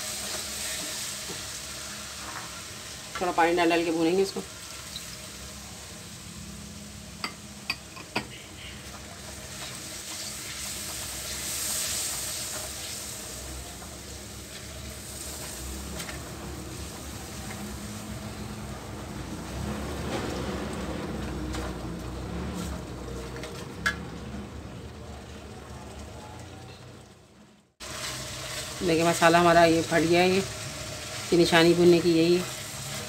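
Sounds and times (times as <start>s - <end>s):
masala sizzling in oil: 0.0s - 33.0s.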